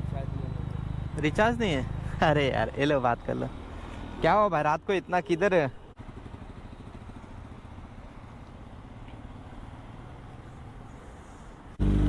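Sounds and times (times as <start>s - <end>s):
motorcycle engine idling: 5.8s - 10.9s.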